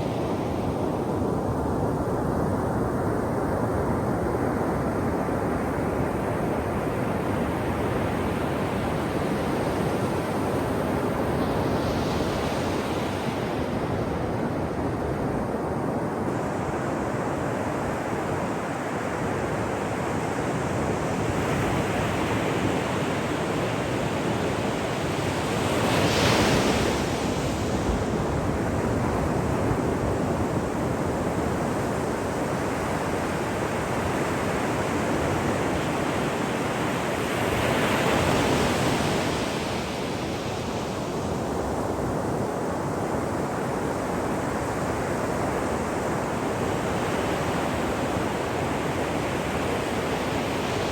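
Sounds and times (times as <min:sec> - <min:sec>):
big waves breaking: 0:20.6 - 0:50.9
ocean surf washing onto shore: 0:21.9 - 0:50.9.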